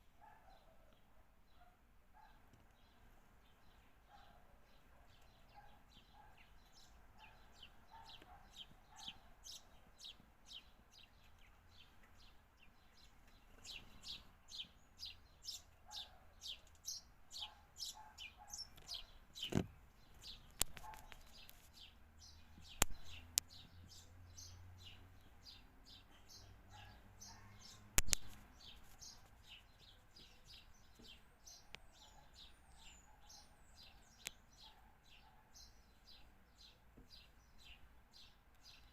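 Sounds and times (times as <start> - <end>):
small birds chirping: 0.0 - 38.9
sharp clicks or taps: 20.5 - 21.6, 22.7 - 23.5, 28.0 - 28.4.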